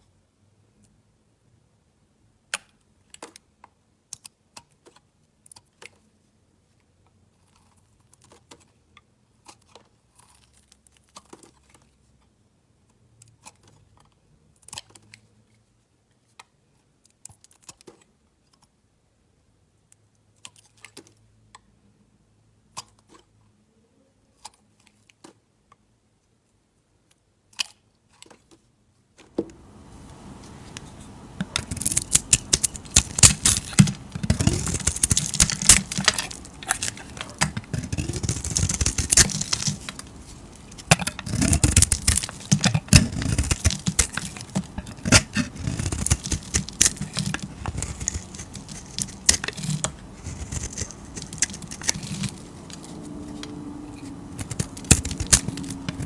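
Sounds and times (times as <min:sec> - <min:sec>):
knife cutting through soap: 0:31.4 - 0:40.1, 0:40.7 - 0:52.9, 0:54.0 - 0:56.0.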